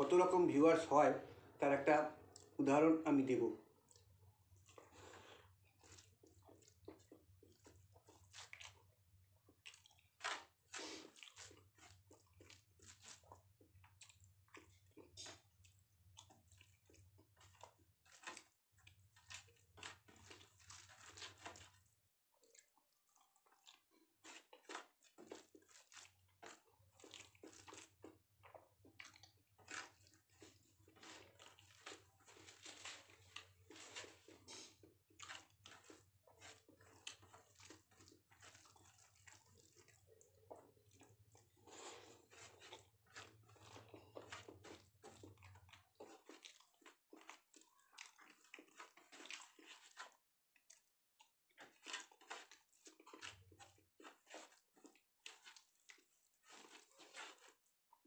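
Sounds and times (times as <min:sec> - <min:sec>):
person chewing: 0:00.0 - 0:58.0
fingers squishing rice: 0:02.2 - 0:58.0.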